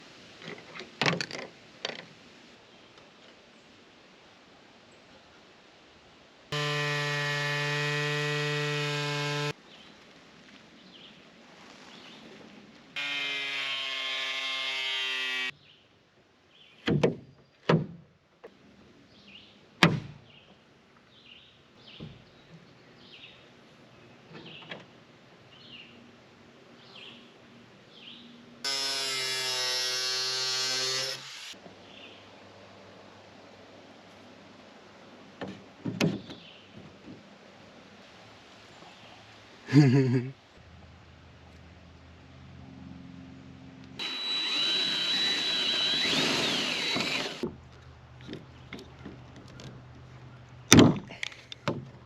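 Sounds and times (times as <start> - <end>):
handheld power tool running: 44.0 - 47.4.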